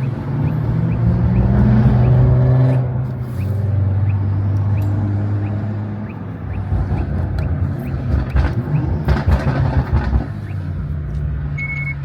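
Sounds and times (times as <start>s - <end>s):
short high beep: 11.6s - 12.0s.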